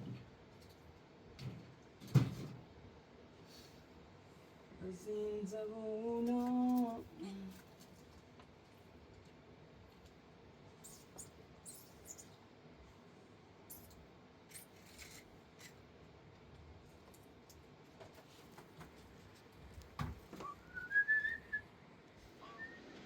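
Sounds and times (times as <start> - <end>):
short whistled note: 22.4 - 22.9.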